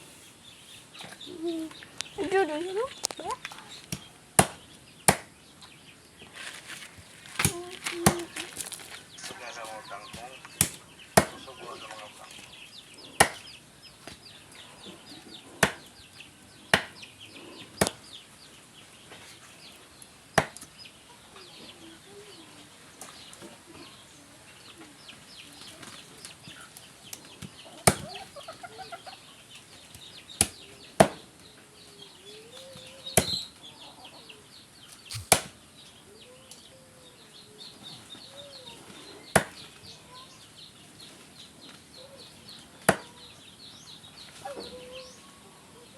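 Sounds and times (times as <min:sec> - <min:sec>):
cleaver chopping on a board: 0:03.9 - 0:05.3, 0:10.6 - 0:11.4, 0:13.2 - 0:13.4, 0:15.6 - 0:15.9, 0:16.7 - 0:17.0, 0:20.4 - 0:20.6, 0:33.2 - 0:33.4, 0:35.1 - 0:35.5, 0:39.4 - 0:39.6, 0:42.9 - 0:43.1
chickens clucking: 0:05.6 - 0:45.9
chicks cheeping: 0:07.0 - 0:45.9.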